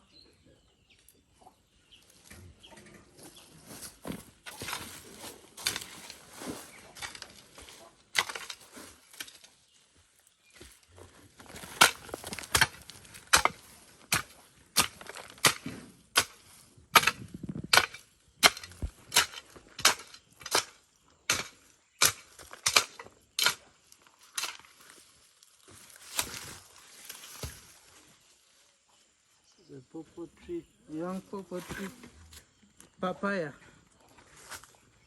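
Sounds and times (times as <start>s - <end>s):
hoe chopping into soil: 4.0s - 9.4s, 11.5s - 23.7s, 24.3s - 24.7s, 25.9s - 27.7s.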